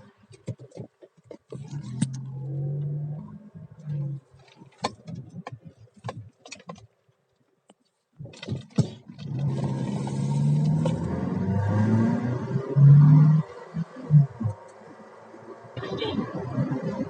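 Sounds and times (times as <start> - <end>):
clicks and knocks inside car: 0.2 - 2.4, 3.6 - 7.1, 7.7 - 9.6
car engine accelerating: 1.6 - 4.7, 9.1 - 17.0.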